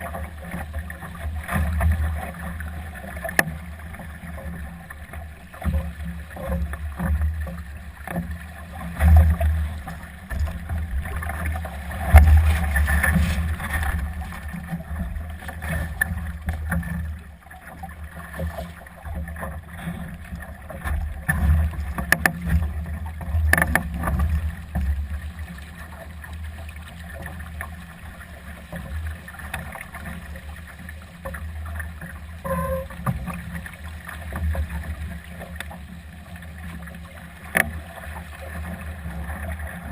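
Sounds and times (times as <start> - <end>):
water slapping along hull: 0.0 - 39.9.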